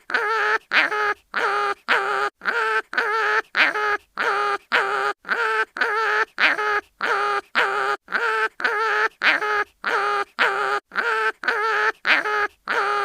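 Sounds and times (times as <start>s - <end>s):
cartoon animal crying in pain: 0.0s - 13.0s.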